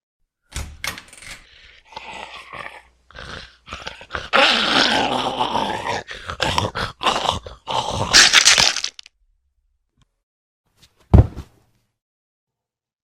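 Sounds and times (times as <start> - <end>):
zombie growling and snarling: 1.5 - 9.1.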